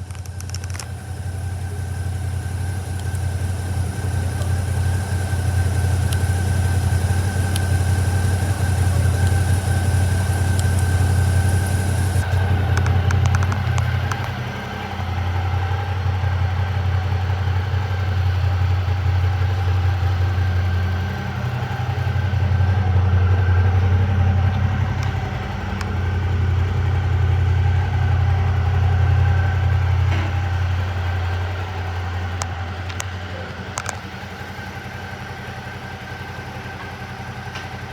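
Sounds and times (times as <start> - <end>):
light clicks: 0.0 - 14.5
motorcycle engine idling: 0.0 - 37.9.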